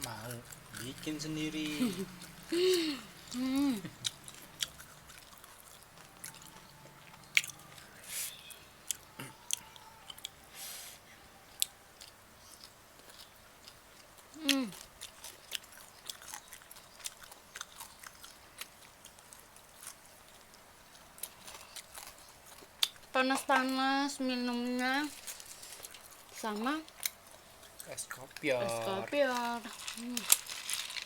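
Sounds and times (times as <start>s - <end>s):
person chewing food: 0.0s - 10.4s, 11.5s - 23.1s, 25.2s - 28.0s.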